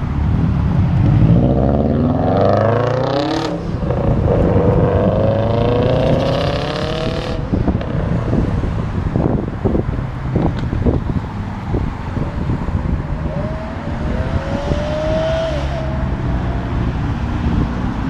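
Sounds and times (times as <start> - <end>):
car engine accelerating: 11.7 - 18.0.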